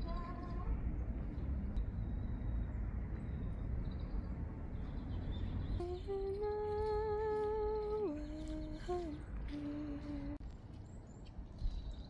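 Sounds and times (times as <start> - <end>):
wind rumble on microphone: 0.0 - 12.0
person humming: 5.8 - 10.4.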